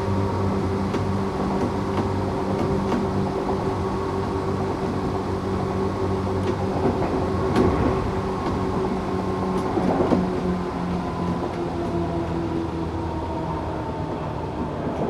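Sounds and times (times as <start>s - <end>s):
train rattling: 0.0s - 15.0s
wheel and rail rumble: 0.0s - 15.0s.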